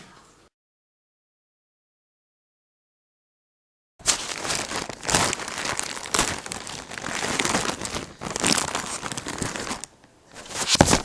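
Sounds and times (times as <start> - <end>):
package being torn open: 4.0 - 9.9
plastic wrapping crinkling: 4.0 - 11.0.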